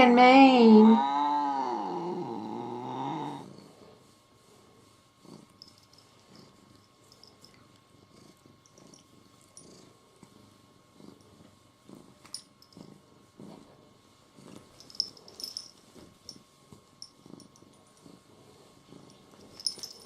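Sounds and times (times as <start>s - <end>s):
cat purring: 0.7s - 20.0s.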